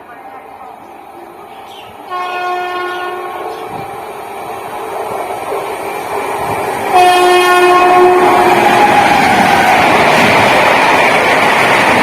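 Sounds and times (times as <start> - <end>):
train running noise: 0.0 - 12.0
train horn blast: 2.1 - 3.6, 6.9 - 8.6.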